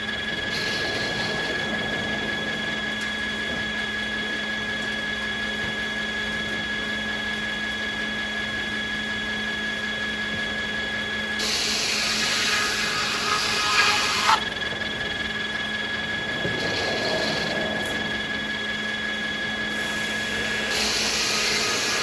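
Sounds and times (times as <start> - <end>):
saw machinery whining: 0.0 - 22.0
blade cutting wood hiss: 11.4 - 14.4, 19.7 - 22.0.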